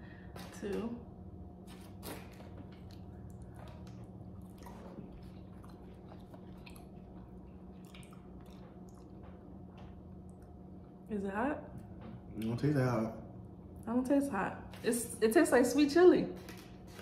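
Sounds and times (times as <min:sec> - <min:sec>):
steady low hum: 0:00.0 - 0:17.0
person chewing: 0:01.6 - 0:10.6.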